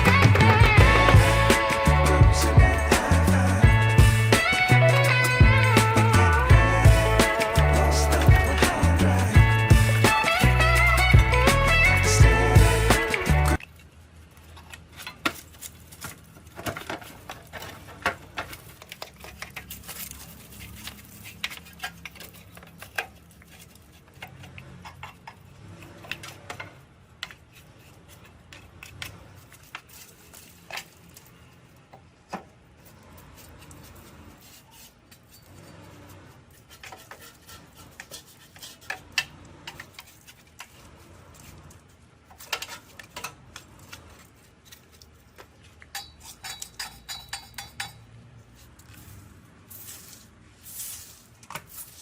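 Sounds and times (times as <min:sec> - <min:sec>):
metal tools clinking: 0:36.6 - 0:49.9.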